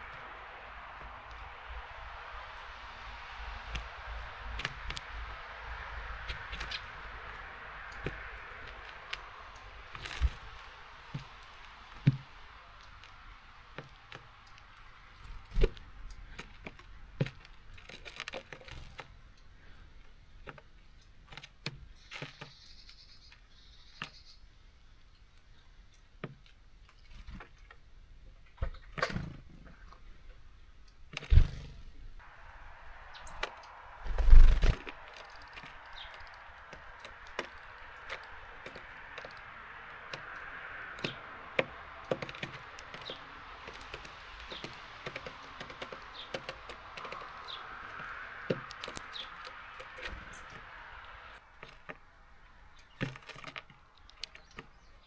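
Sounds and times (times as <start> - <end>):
high bird chirp: 32.4 - 41.4
beaks tapping on bird feeder: 33.1 - 52.0.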